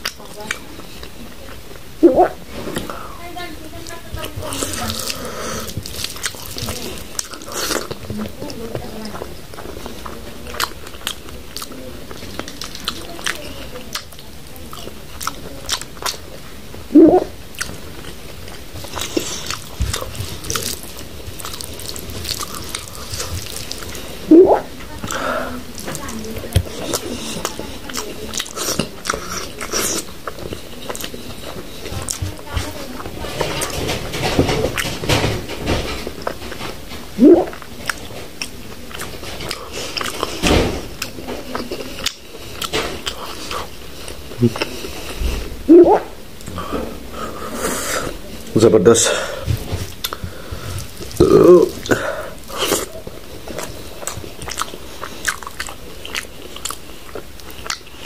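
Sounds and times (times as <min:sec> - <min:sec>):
man chewing wet food: 0:00.0 - 0:58.0
loud throaty mouth noises: 0:02.0 - 0:03.2, 0:16.9 - 0:32.5, 0:37.2 - 0:48.2, 0:48.9 - 0:58.0.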